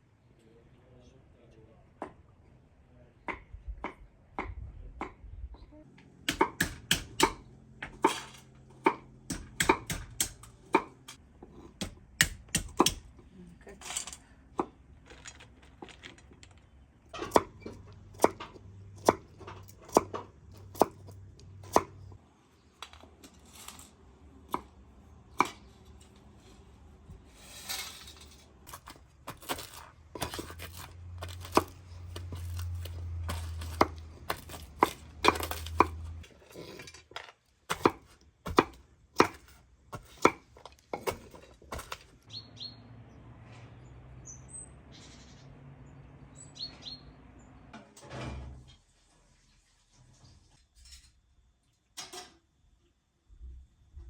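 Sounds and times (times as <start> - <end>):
knife chopping on cutting board: 28.8 - 36.0, 37.7 - 40.4, 41.0 - 42.0.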